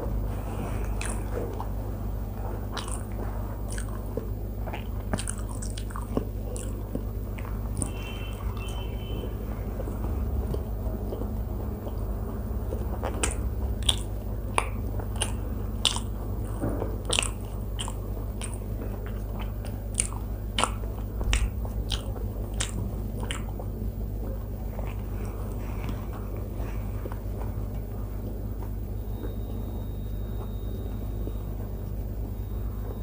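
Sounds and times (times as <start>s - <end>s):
steady low hum: 0.0s - 33.0s
person chewing food: 0.3s - 29.4s
wet mouth smacks and clicks: 13.2s - 16.1s, 17.1s - 23.5s.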